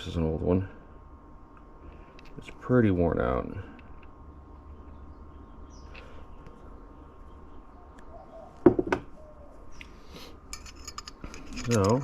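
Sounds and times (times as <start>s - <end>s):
low steady hum: 0.0s - 12.0s
metal parts knocking: 10.6s - 12.0s.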